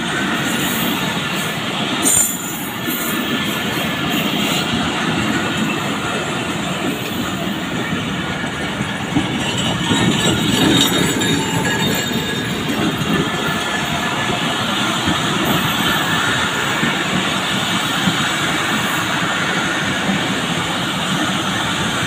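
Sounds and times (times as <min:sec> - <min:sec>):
train wheels on rails: 0:00.0 - 0:22.0.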